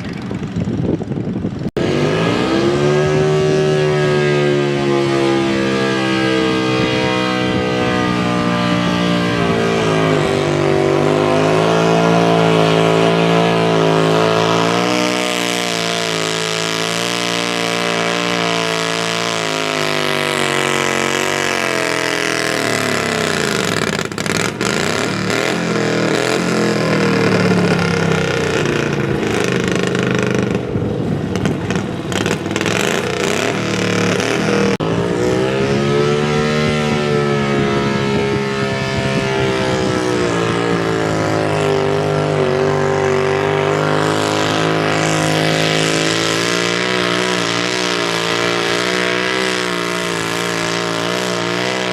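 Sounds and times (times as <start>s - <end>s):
tractor engine running under load: 0.0s - 1.7s, 13.7s - 34.8s.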